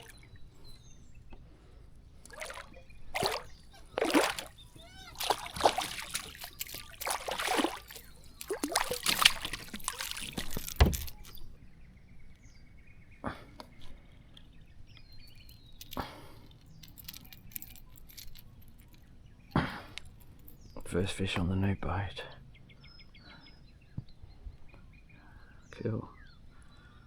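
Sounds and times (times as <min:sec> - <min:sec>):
water dripping: 0:00.0 - 0:00.3, 0:02.2 - 0:11.4
water splashing against kayak: 0:02.2 - 0:11.4
light knocks: 0:09.0 - 0:11.4.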